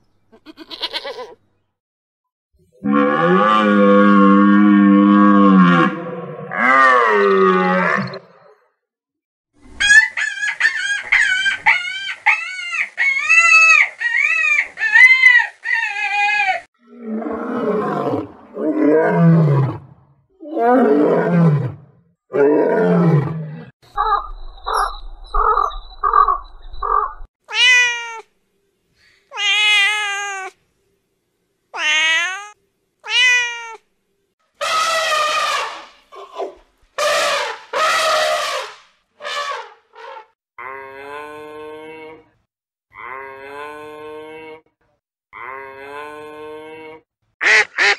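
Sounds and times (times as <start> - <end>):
lion roars: 16.8 - 23.7
cat meowing: 27.5 - 28.3, 29.3 - 30.6, 31.8 - 33.8
elephant trumpeting: 34.6 - 40.3.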